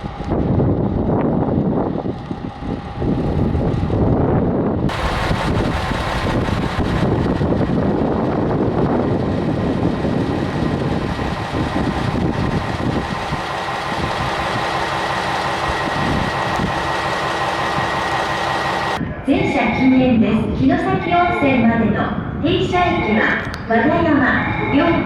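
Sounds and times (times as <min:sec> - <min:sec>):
diesel railcar engine idling: 0:00.0 - 0:19.0.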